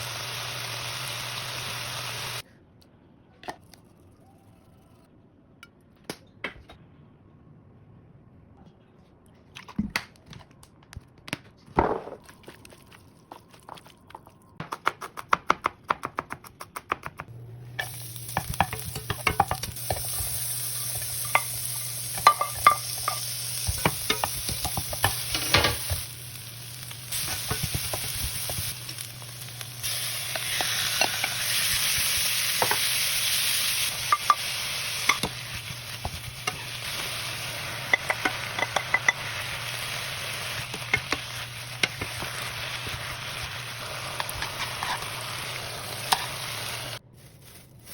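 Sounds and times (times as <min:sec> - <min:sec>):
meat sizzling in a frying pan: 0:00.0 - 0:02.4, 0:17.8 - 0:47.0.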